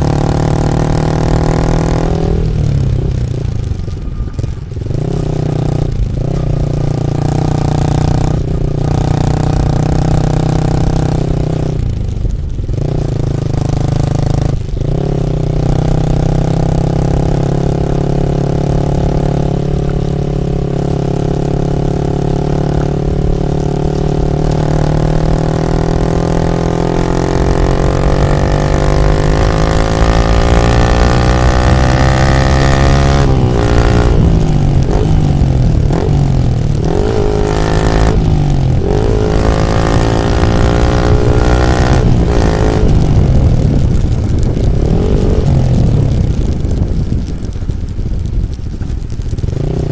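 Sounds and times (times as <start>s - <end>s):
motorcycle engine revving under load: 0.0s - 3.6s, 12.7s - 47.3s.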